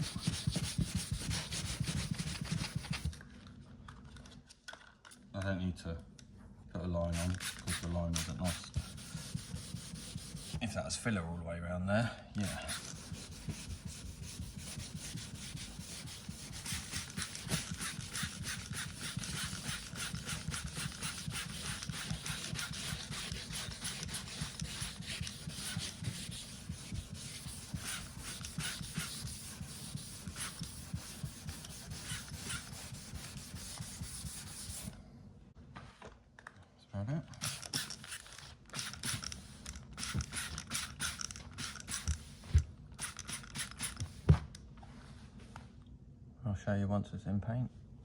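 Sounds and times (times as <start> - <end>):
sandpaper sanding metal panel: 0.0 - 3.1, 7.1 - 10.6, 12.4 - 34.9.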